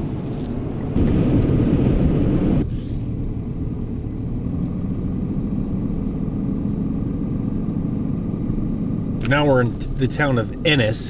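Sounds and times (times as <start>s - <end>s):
pickup truck engine and road rumble: 0.0s - 11.0s
loud wide rush: 1.0s - 2.7s.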